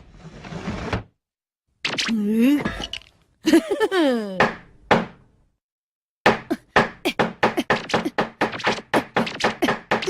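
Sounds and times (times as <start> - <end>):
cartoon knocking and thunking: 4.4 - 5.3, 6.2 - 10.0.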